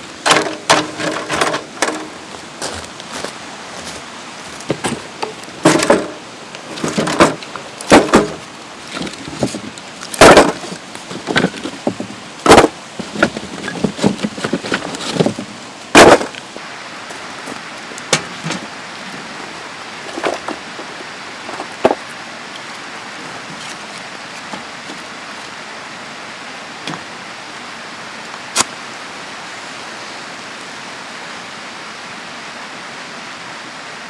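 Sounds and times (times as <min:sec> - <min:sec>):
steady hiss: 0:00.0 - 0:34.0
knocks and clatters: 0:00.2 - 0:02.8, 0:04.5 - 0:16.4, 0:18.1 - 0:19.2, 0:20.0 - 0:22.1.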